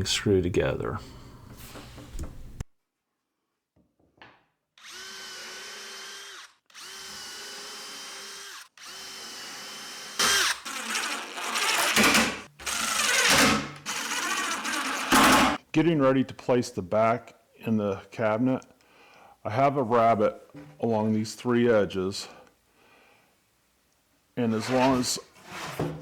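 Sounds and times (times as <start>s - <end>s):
cordless drill drilling into wood: 4.8s - 15.6s.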